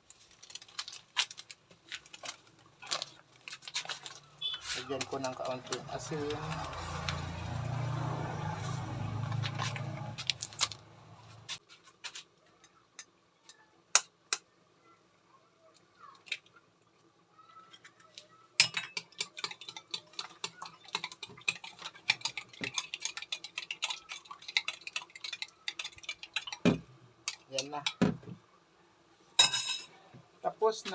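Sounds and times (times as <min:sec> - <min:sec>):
whisk clinking in bowl: 0:18.6 - 0:26.7.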